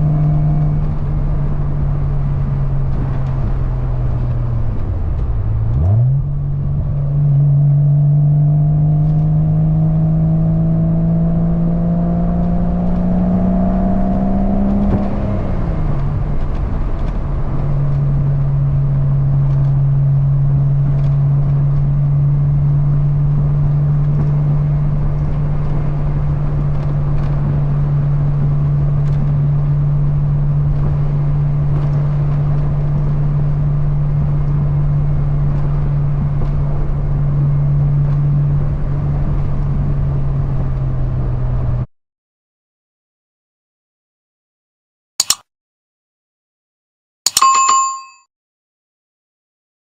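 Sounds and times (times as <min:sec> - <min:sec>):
wind noise: 0:00.0 - 0:07.9
car engine accelerating: 0:00.0 - 0:41.9.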